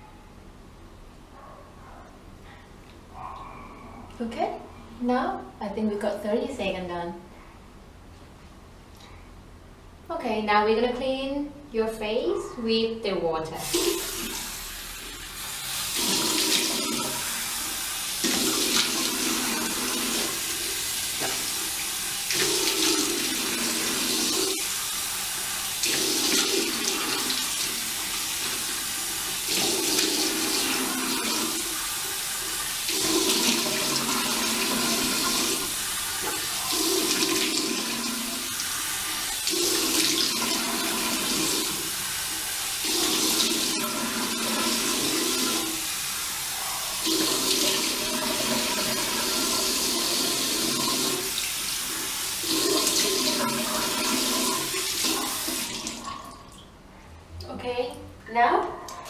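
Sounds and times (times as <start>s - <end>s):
tap running into a sink: 21.1s - 21.6s, 36.2s - 37.6s.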